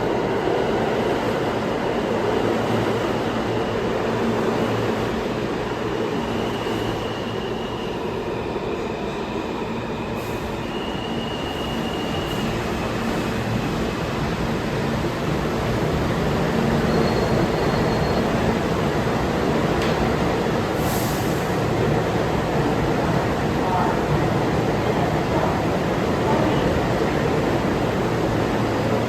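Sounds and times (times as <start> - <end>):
subway train rumble: 0.0 - 29.0
high wheel squeals: 16.6 - 18.6.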